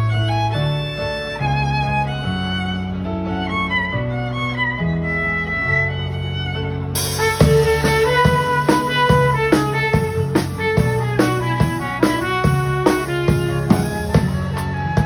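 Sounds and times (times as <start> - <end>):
low string and keyboard line: 0.0 - 15.0
violin melody: 0.0 - 15.0
cymbals: 7.0 - 15.0
drum hits: 7.0 - 15.0.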